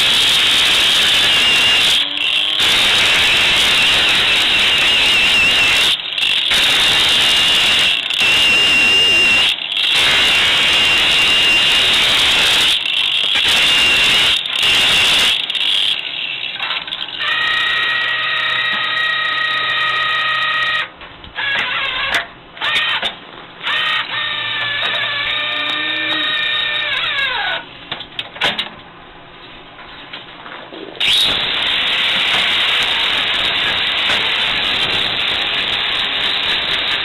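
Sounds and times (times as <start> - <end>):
hissing grinding rush: 0.0 - 17.3, 31.0 - 37.0
motor whining: 0.0 - 20.8, 23.8 - 27.6.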